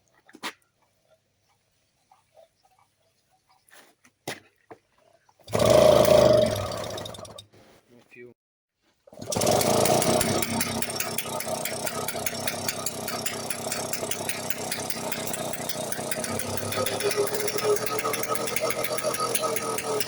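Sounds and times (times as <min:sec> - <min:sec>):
two-stroke engine running: 0:05.5 - 0:07.4, 0:09.2 - 0:20.0.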